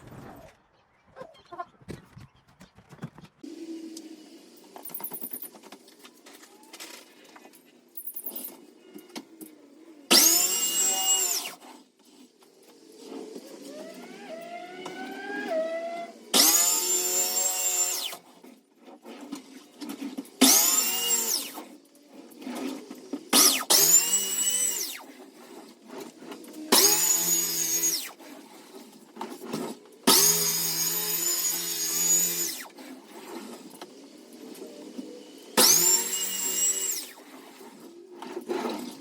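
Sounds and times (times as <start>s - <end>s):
electric sander motor: 30.1s - 32.8s, 35.2s - 37.3s.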